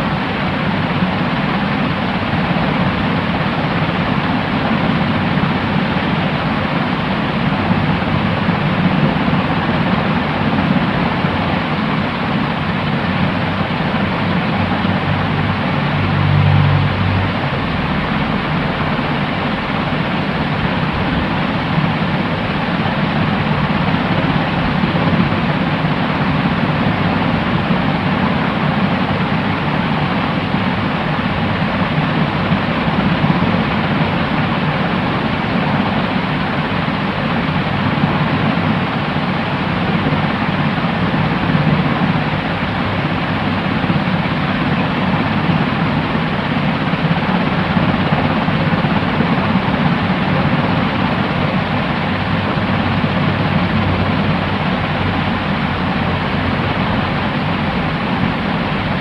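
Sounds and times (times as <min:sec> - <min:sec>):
white noise rushing hiss: 0:00.0 - 0:59.0.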